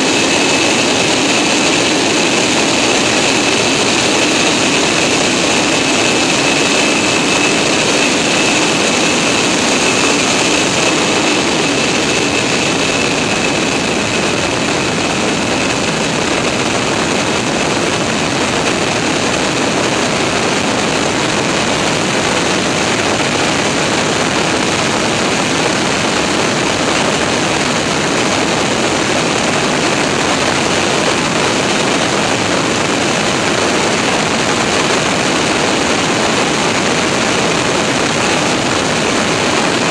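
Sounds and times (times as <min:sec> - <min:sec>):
high whine: 0:00.0 - 0:39.9
jet engine rush and airflow: 0:00.0 - 0:39.9.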